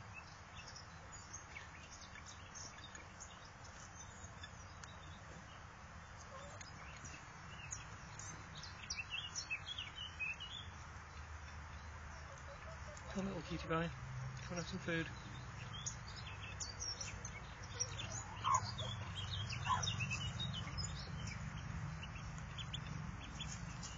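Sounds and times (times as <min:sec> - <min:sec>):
duckling peeping: 0:16.2 - 0:23.9.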